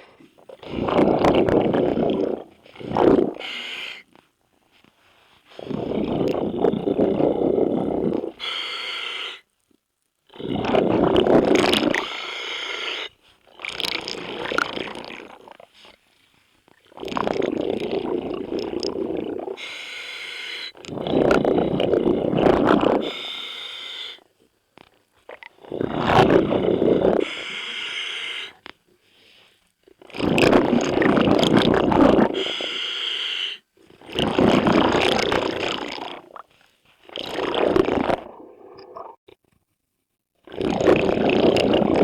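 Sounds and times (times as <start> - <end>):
exhaled bubbles rumbling: 0.4 - 3.5, 5.6 - 8.4, 10.3 - 12.1, 13.5 - 15.9, 16.8 - 19.8, 20.8 - 23.1, 25.3 - 27.4, 30.0 - 32.4, 33.9 - 39.2, 40.4 - 42.0
regulator inhalation hiss: 8.4 - 9.4, 12.0 - 13.2, 19.6 - 20.8, 23.0 - 24.2, 27.2 - 28.6, 32.4 - 33.6.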